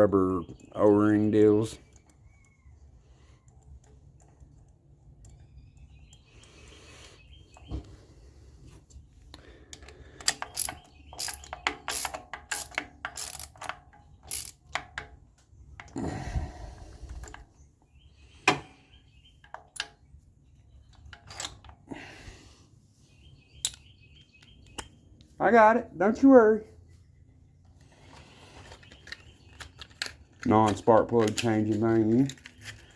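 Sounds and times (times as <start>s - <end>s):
ratchet wrench clicking: 10.2s - 14.9s
rustle of handling: 27.7s - 32.9s.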